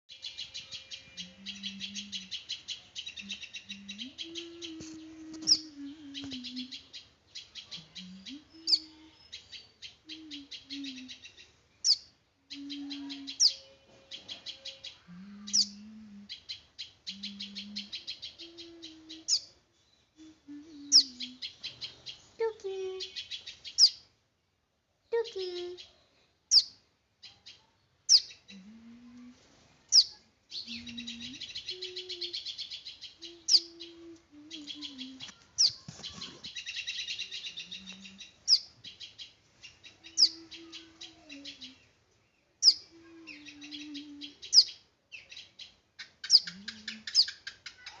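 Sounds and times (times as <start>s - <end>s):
small bird chirping: 0.1s - 24.1s, 25.1s - 48.0s
buzzy chattering bird trills: 46.2s - 48.0s.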